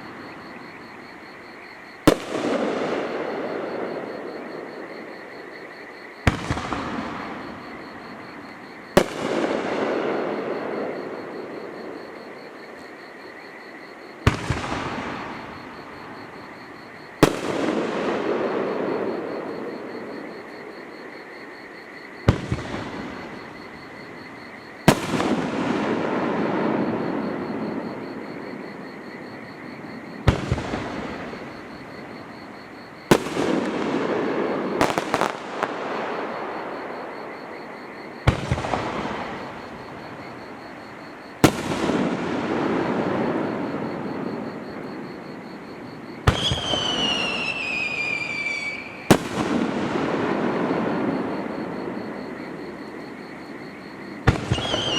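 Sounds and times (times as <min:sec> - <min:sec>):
fireworks bangs with echo: 0:02.0 - 0:04.4, 0:06.2 - 0:12.1, 0:14.2 - 0:16.3, 0:17.2 - 0:19.9, 0:22.2 - 0:23.7, 0:24.8 - 0:28.2, 0:30.2 - 0:32.4, 0:33.0 - 0:40.7, 0:41.4 - 0:53.0, 0:54.2 - 0:54.9.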